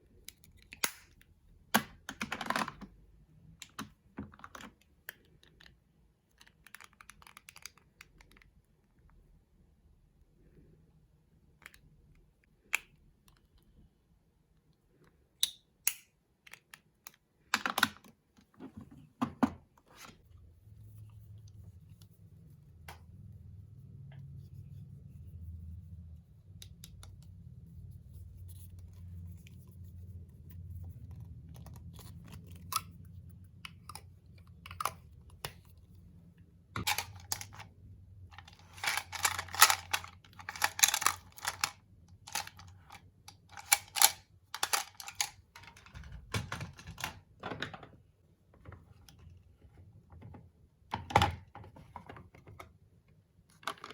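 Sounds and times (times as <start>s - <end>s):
faint low rumble: 20.2s - 43.3s.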